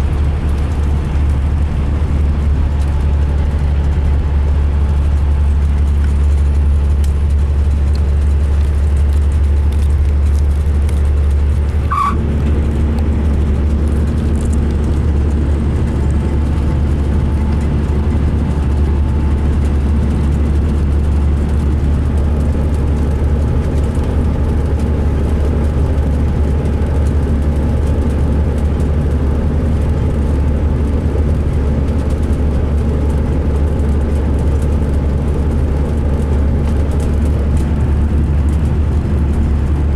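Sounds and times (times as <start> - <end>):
bus engine droning: 0.0 - 39.9
sharp squeak: 11.9 - 12.2.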